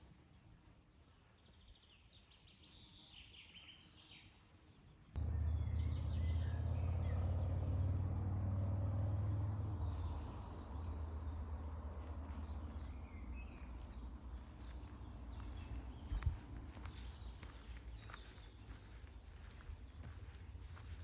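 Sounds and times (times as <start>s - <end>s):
songbirds chirping and trilling: 0.0s - 21.0s
loud low rumble: 5.2s - 17.3s.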